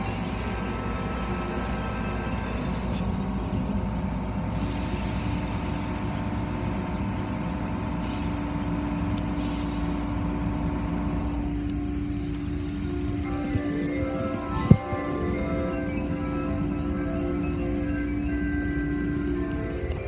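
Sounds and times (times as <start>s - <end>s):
brief hissing: 9.4s - 10.0s.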